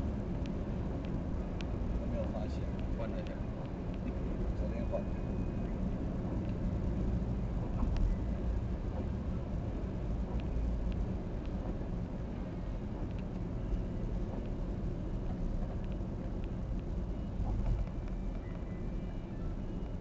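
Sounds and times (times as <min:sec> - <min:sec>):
engine and road rumble: 0:00.0 - 0:20.0
faint light ticks: 0:00.3 - 0:04.2, 0:06.3 - 0:09.2, 0:10.2 - 0:12.0, 0:12.6 - 0:20.0.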